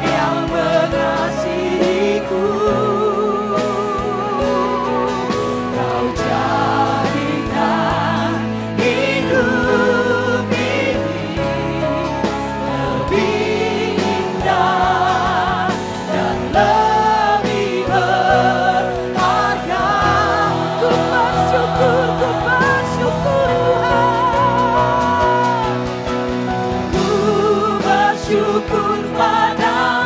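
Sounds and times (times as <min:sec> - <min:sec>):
band playing worship music: 0:00.0 - 0:30.0
singer and congregation singing: 0:00.0 - 0:30.0.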